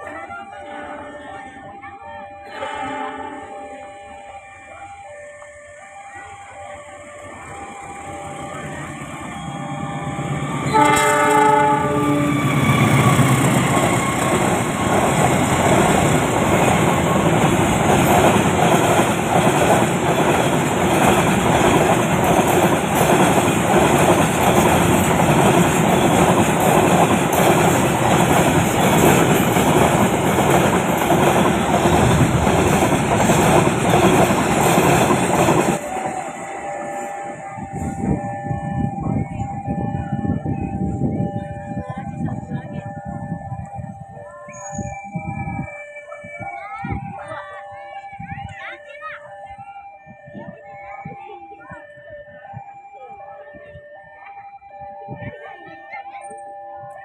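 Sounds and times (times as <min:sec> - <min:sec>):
locomotive horn blast: 0:00.2 - 0:05.0, 0:10.6 - 0:14.9
train wheels rumbling on rails: 0:07.0 - 0:48.9.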